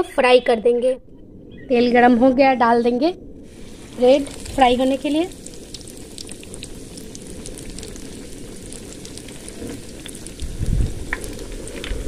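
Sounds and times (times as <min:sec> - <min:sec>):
food deep-frying in hot oil: 0:03.4 - 0:12.0.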